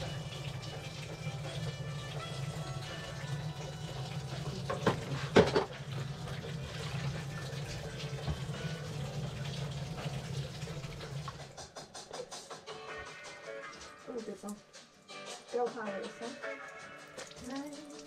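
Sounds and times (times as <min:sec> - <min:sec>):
water sloshing in a washbasin: 0:00.0 - 0:11.9, 0:16.2 - 0:18.0.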